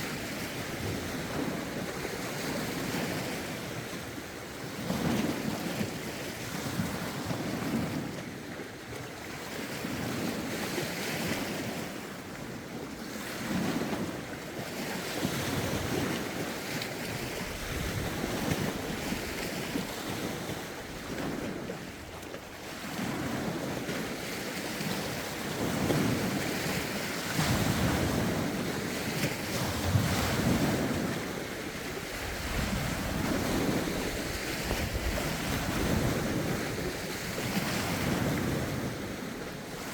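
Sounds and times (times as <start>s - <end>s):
lake waves washing ashore: 0.0s - 39.9s
wind: 0.0s - 39.9s
wind buffeting microphone: 12.6s - 39.9s.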